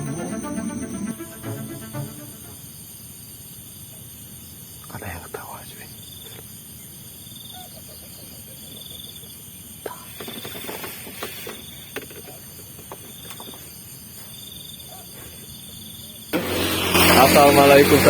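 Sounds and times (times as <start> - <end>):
high-pitched insect drone: 0.0 - 3.0.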